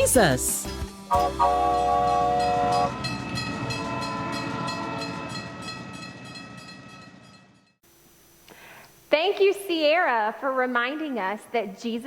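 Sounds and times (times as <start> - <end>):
train horn chord: 1.1 - 6.1.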